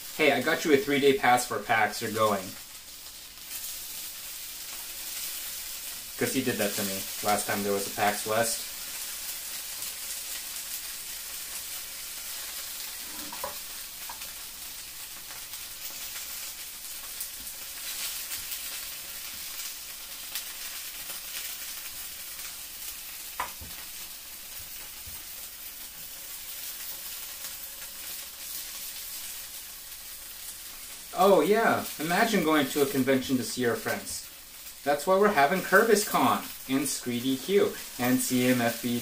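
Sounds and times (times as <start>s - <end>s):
dumplings sizzling in oil: 0.0s - 39.0s.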